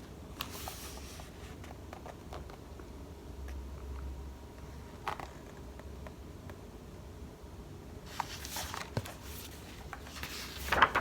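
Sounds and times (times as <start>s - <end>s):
steady low hum: 0.0s - 11.0s
book pages rustling: 0.4s - 2.6s, 8.1s - 11.0s.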